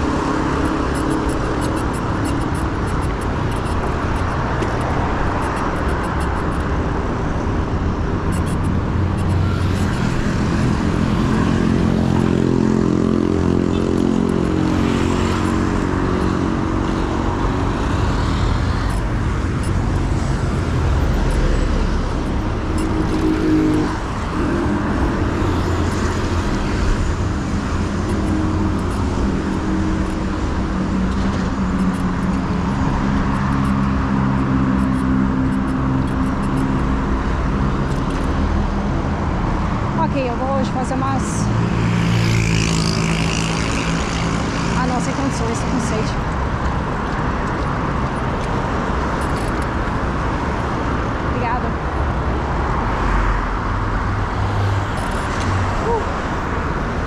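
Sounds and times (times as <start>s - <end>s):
motor vehicle engines droning: 0.0s - 57.0s.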